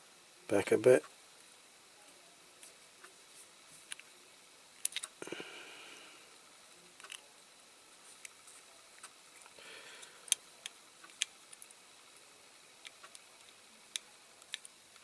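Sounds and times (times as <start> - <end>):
toy car parts clicking: 7.0 - 7.2, 12.8 - 15.0.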